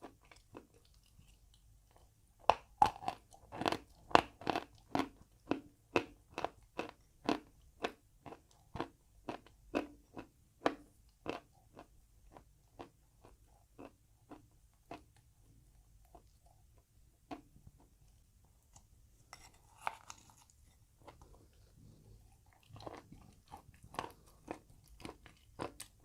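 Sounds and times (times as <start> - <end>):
person chewing crunchy chalk: 18.7 - 26.0.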